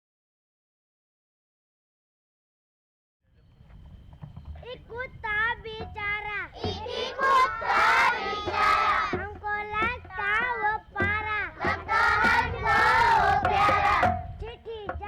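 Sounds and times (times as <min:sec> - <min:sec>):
children singing together: 0:05.9 - 0:14.9.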